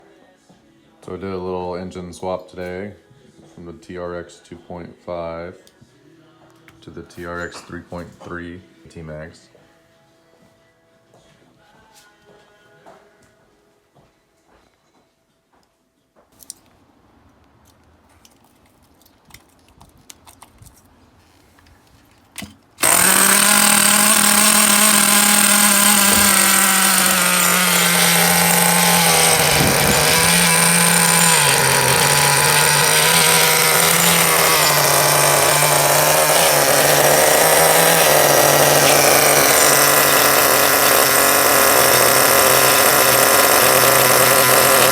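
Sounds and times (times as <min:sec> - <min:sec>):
nitro engine running loudly: 0:22.8 - 0:44.9.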